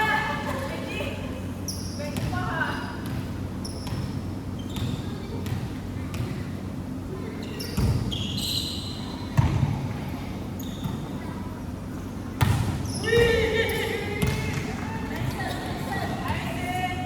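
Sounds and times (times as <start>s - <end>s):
sneakers squeaking: 0.0s - 17.0s
basketball bouncing on court: 2.1s - 6.5s, 7.7s - 8.2s, 9.4s - 10.0s, 12.4s - 13.5s, 14.2s - 15.5s
players' voices: 8.5s - 17.0s.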